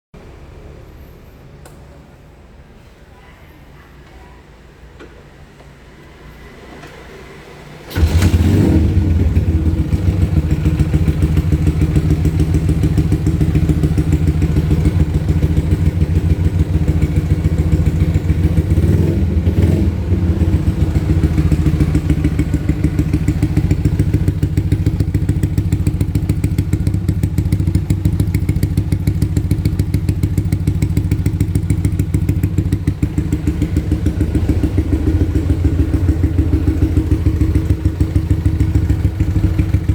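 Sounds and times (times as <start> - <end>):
motorcycle engine idling: 7.9 - 39.9.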